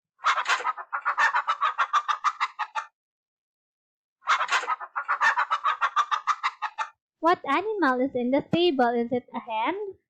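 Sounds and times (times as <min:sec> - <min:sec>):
hen clucking: 0:00.2 - 0:02.9, 0:04.2 - 0:07.0.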